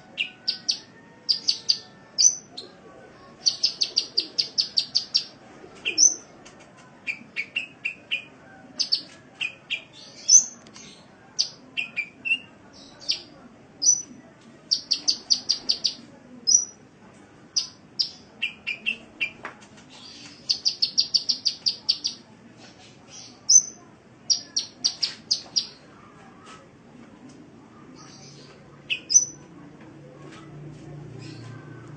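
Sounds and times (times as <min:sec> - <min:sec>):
sunbird song: 0:20.0 - 0:22.2.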